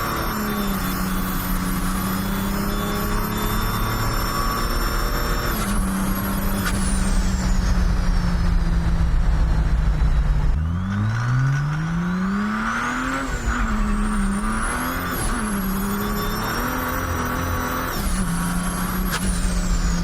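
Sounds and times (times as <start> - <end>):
turbo whistle: 0.0 - 8.6, 12.8 - 20.0
diesel engine revving: 0.0 - 20.0.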